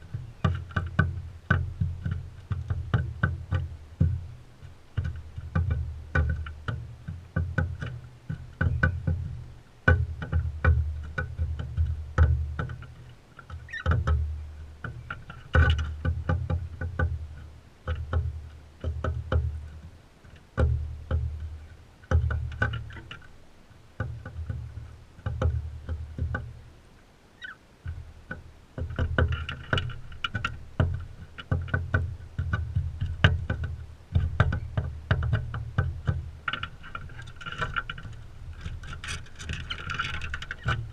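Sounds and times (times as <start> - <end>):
bird chirps: 27.4 - 27.6.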